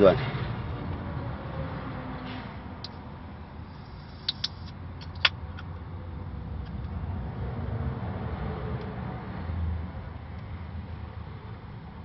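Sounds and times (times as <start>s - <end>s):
motor vehicle rumble: 0.0s - 12.0s
sharp clicks: 4.0s - 5.7s.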